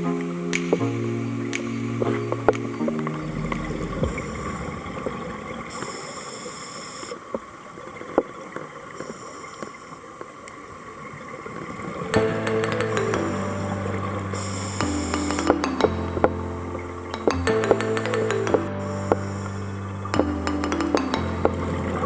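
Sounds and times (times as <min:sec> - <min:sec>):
underwater bubbling: 0:00.1 - 0:22.0
scattered clicks: 0:00.5 - 0:04.6.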